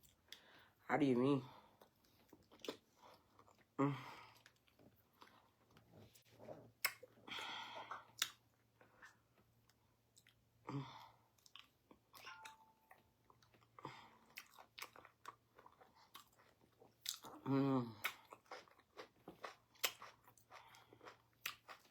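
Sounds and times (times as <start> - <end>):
wet chewing sounds: 1.8 - 7.1, 11.4 - 12.6, 13.3 - 21.9.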